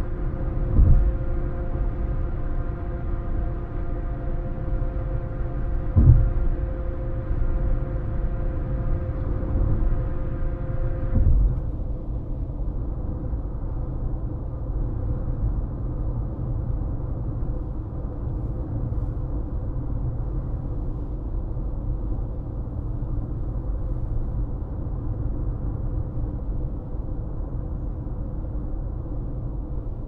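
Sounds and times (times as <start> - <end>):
car road noise rumble: 0.0 - 30.0
faint steady tonal hum: 0.0 - 30.0
short thumps: 6.0 - 6.4.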